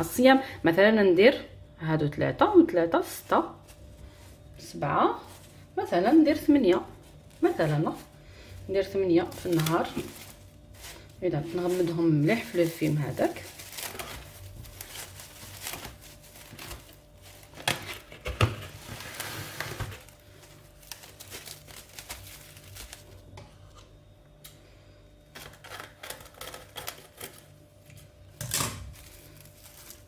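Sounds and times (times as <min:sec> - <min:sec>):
cling film crinkling: 0:03.6 - 0:23.3, 0:28.6 - 0:30.0.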